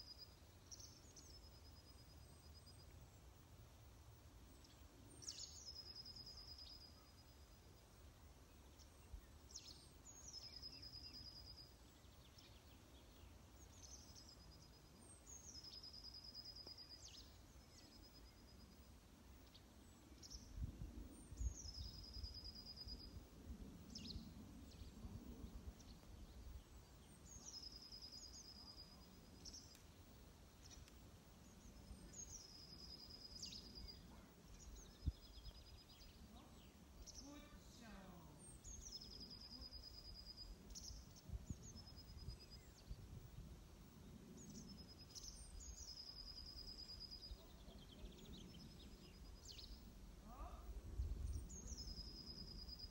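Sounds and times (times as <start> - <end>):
songbird singing trill: 0.0 - 3.4, 4.3 - 52.9
faint low rumble: 16.4 - 52.9.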